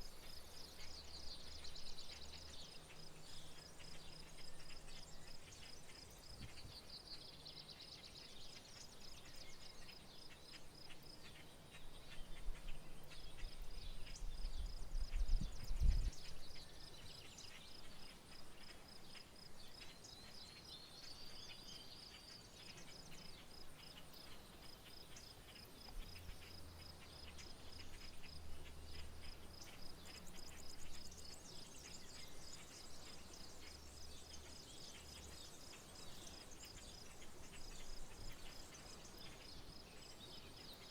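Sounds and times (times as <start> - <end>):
insects trilling: 8.6 - 40.9.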